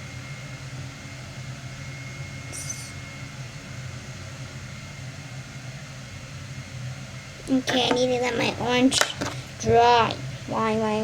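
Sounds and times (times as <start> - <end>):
faint thin whine: 0.0 - 11.0
low room hum: 0.0 - 11.0
high-pitched squeak: 2.5 - 3.0.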